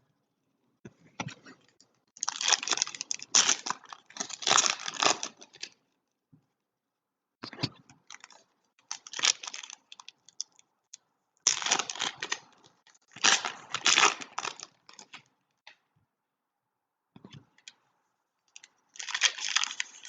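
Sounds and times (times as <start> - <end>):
card pack wrappers crinkling: 2.2 - 5.8, 8.1 - 10.6, 11.5 - 15.2, 18.6 - 20.0.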